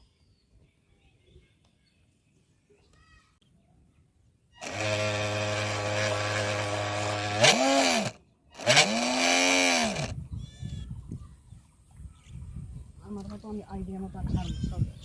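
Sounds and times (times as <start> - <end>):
small electric motor whining: 4.6 - 10.2.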